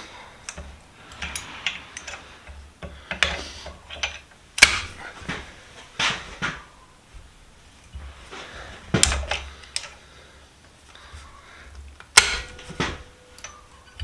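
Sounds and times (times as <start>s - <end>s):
metallic clicks and knocks on vise: 0.5s - 5.0s, 12.0s - 14.0s.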